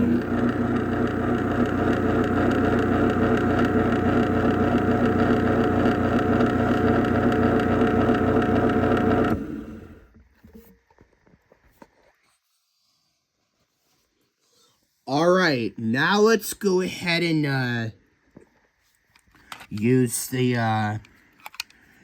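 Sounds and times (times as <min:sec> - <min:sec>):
garage door opener motor hum: 0:00.0 - 0:10.1.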